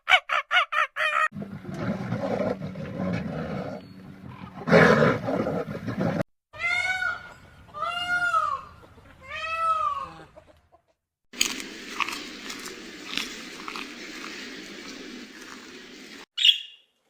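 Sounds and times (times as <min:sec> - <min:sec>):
growling animal roar: 0:01.9 - 0:06.2.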